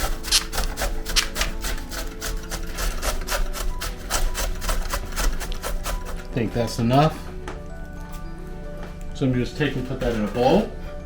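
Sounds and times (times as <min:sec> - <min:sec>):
ginger scraping on a grater: 0:00.0 - 0:07.2.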